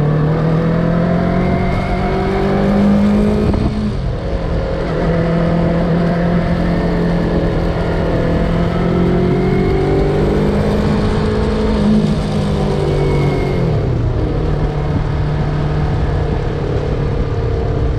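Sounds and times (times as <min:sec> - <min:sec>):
rush of wind noise: 0:00.0 - 0:17.9.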